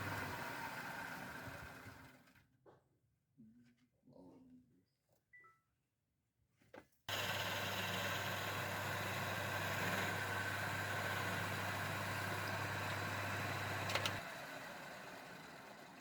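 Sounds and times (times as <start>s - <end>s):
power tool motor humming: 7.1s - 15.8s.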